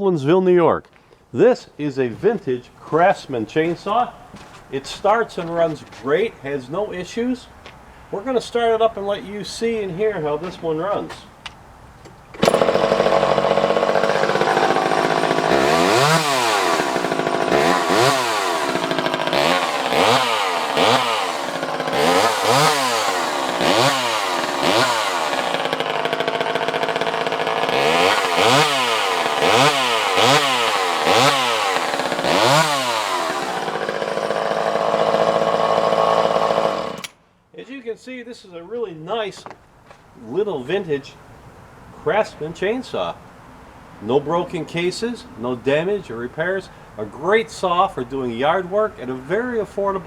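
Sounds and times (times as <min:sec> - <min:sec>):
chainsaw engine idling and revving: 0:12.4 - 0:37.1.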